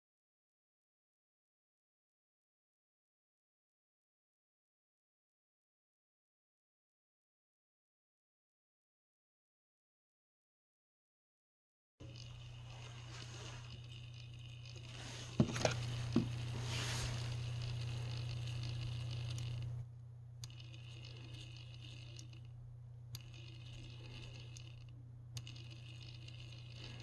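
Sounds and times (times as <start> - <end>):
steady low hum: 12.0 - 27.0.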